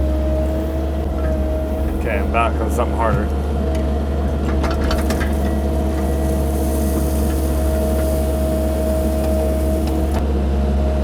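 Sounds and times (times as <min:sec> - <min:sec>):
diesel engine droning: 0:00.0 - 0:11.0
engine whine: 0:00.0 - 0:11.0
hiss: 0:05.1 - 0:10.2.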